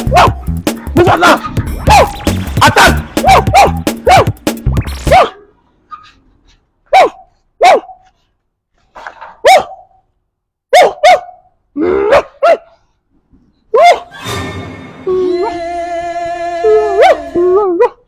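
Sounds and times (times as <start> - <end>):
dog barking: 0.0 - 0.4, 3.2 - 4.4, 5.1 - 5.5, 6.8 - 8.2, 9.4 - 10.0, 10.7 - 12.9, 13.7 - 14.1, 17.0 - 18.0.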